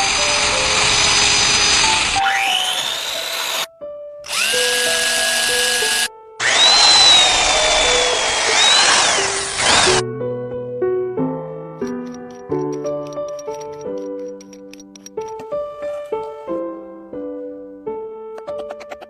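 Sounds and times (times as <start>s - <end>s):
power tools whining: 0.0s - 3.7s, 4.3s - 10.0s
background music: 0.0s - 19.0s.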